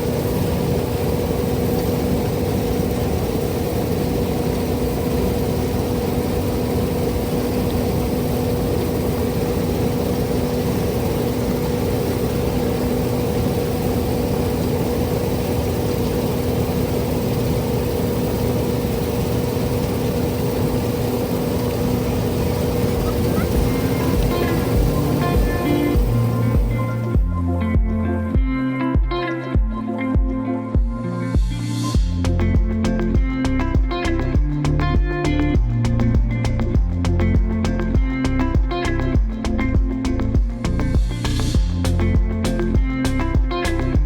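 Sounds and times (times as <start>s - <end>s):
heavy farm machinery hum: 0.0s - 27.2s.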